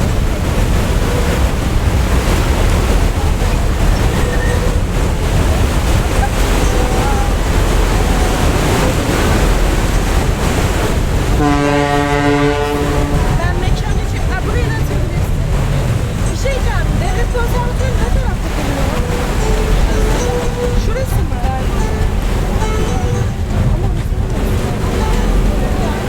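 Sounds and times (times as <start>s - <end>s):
deep horn blast: 0.0s - 16.0s
waves: 0.0s - 26.0s
wind on microphone: 0.0s - 26.0s.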